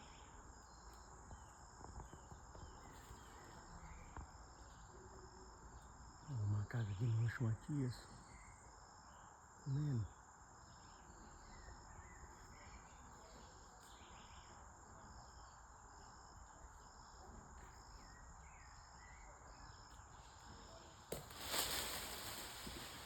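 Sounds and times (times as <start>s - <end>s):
high insect hum: 0.0s - 23.0s
insects chirping: 0.0s - 23.0s.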